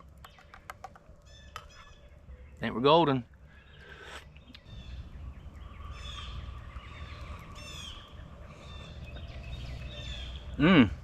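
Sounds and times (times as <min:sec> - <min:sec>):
wild birds calling: 0:00.0 - 0:11.0
low rumbling background: 0:03.2 - 0:11.0.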